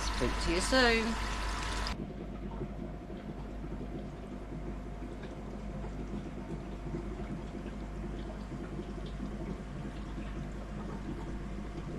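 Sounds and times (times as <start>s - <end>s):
low even hum: 0.0s - 11.9s
running water: 0.0s - 11.9s.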